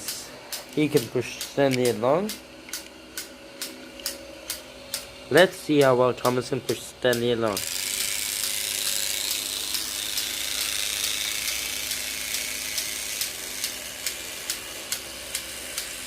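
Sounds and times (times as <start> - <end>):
regular clicks: 0.0 - 5.1
toy train motor whirring: 7.1 - 16.0.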